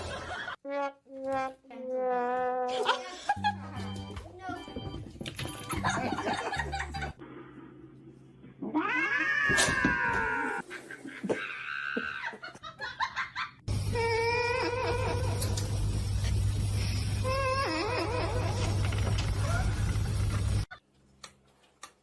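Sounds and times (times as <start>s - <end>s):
cat yowling: 8.6s - 10.6s.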